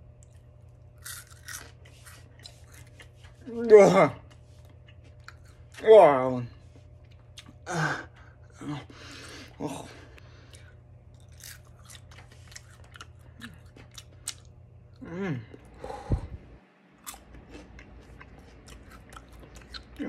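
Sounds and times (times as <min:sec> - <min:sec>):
chewing crunchy insects: 0:00.0 - 0:03.5, 0:04.1 - 0:15.7, 0:17.0 - 0:20.0
person humming: 0:15.0 - 0:16.4.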